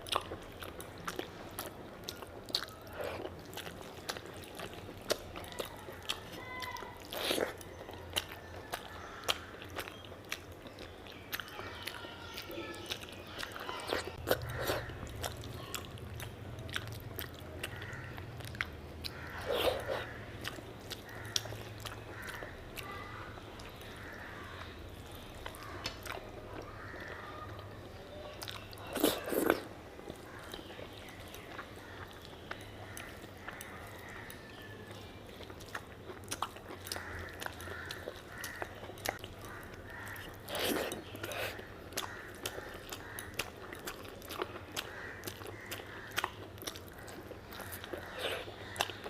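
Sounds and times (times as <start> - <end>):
person chewing food: 0.0 - 49.0.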